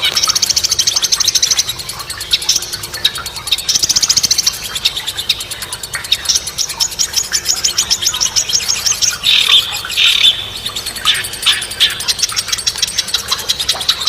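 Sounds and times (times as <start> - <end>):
bird chirps: 0.0 - 14.0
high-pitched bird trills: 0.0 - 14.0
songbirds singing: 0.0 - 14.0.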